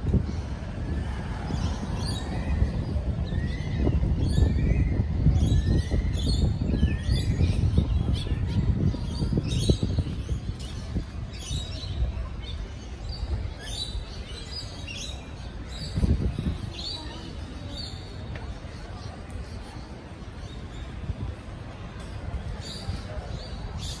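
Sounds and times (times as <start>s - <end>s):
birds chirping and calling: 1.4s - 18.2s.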